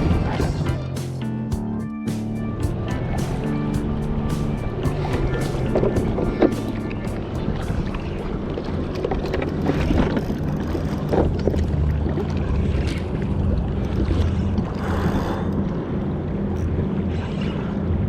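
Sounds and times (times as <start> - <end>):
steady low hum: 0.0 - 10.8
water lapping against kayak: 3.8 - 16.0.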